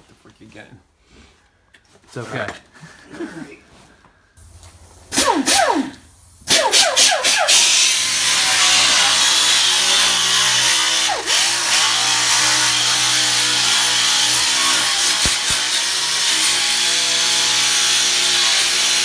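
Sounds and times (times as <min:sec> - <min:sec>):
electric grinder grinding metal: 0:04.4 - 0:19.0.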